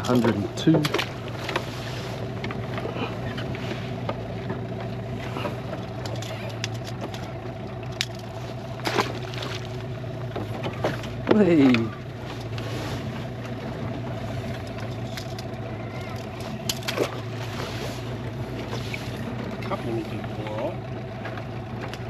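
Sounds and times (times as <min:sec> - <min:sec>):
boat motor humming: 0:00.0 - 0:22.0.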